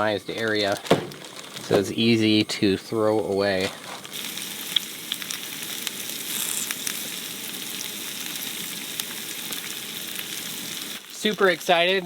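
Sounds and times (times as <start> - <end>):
small pops and crackles: 0.2 - 2.2, 3.0 - 12.0
vegetables sizzling in a pan: 3.4 - 12.0.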